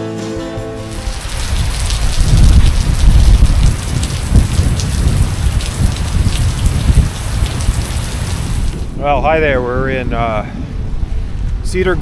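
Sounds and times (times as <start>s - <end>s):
heavy rain pouring: 0.8s - 9.0s
deep uneven rumble: 0.9s - 9.0s.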